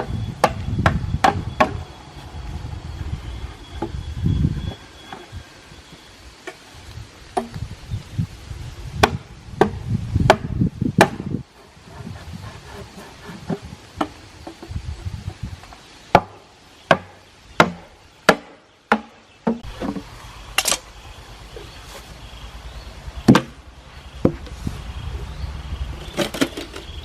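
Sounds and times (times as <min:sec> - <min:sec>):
hand tool striking wood: 0:00.4 - 0:01.8, 0:09.0 - 0:11.3, 0:16.1 - 0:20.0.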